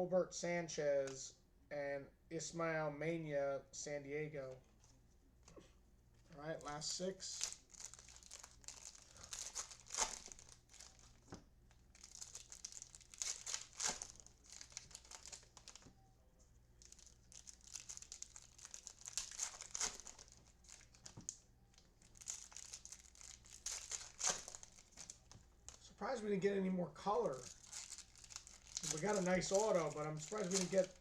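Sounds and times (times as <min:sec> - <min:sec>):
card pack wrappers crinkling: 0:06.7 - 0:15.9, 0:16.8 - 0:26.0, 0:27.1 - 0:31.0.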